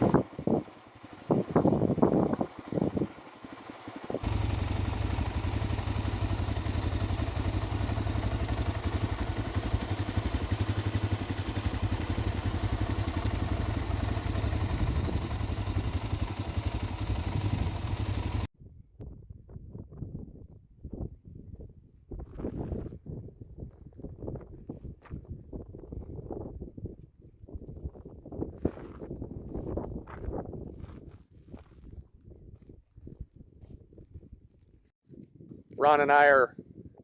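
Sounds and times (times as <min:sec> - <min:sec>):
wind rush: 0:00.0 - 0:03.2, 0:14.4 - 0:18.0
motorcycle engine running: 0:00.0 - 0:18.5.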